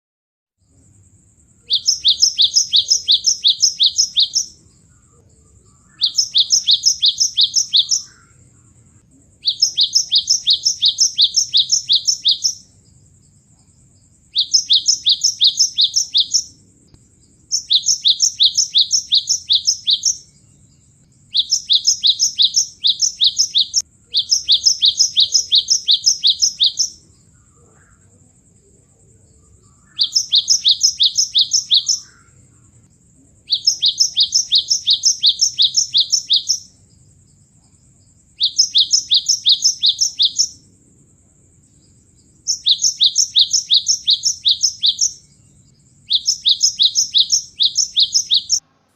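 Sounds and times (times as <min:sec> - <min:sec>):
faint steady high tone: 0:00.6 - 0:48.9
bird song high repeated notes: 0:01.6 - 0:08.5, 0:09.4 - 0:12.8, 0:14.3 - 0:27.3, 0:29.6 - 0:32.5, 0:33.5 - 0:36.8, 0:38.4 - 0:40.7, 0:42.4 - 0:48.7.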